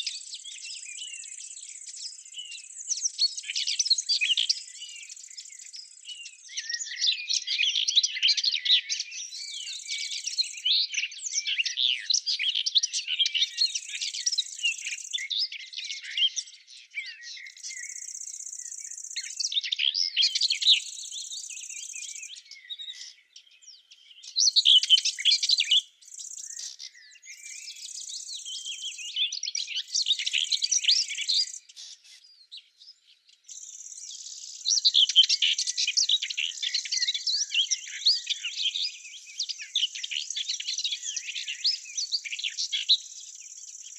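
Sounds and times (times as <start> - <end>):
songbirds warbling: 0.0 - 43.9.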